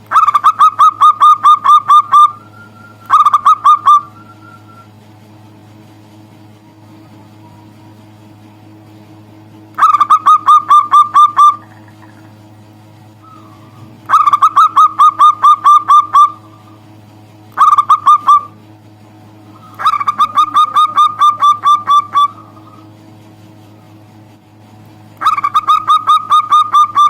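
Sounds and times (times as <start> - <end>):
dove cooing: 0.1 - 4.9, 9.8 - 12.4, 13.2 - 16.8, 17.6 - 18.6, 19.4 - 23.0, 25.2 - 27.0.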